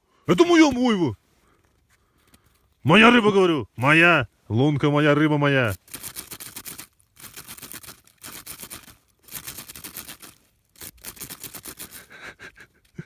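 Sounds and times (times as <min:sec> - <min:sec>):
fox crunching clicks: 0:05.7 - 0:13.0.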